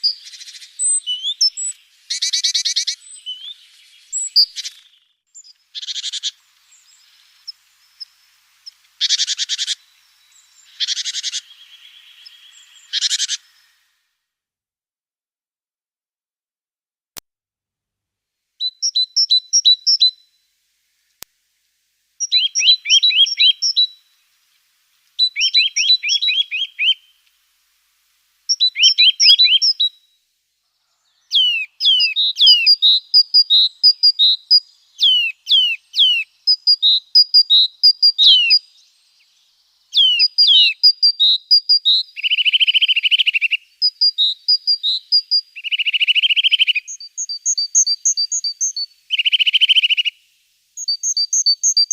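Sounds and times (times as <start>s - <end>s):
buzzy bird calls: 0.0s - 13.8s, 22.2s - 24.0s, 25.2s - 27.2s, 28.5s - 29.9s, 31.1s - 39.2s, 39.9s - 50.1s
songbirds chirping: 0.0s - 14.1s, 18.6s - 51.9s.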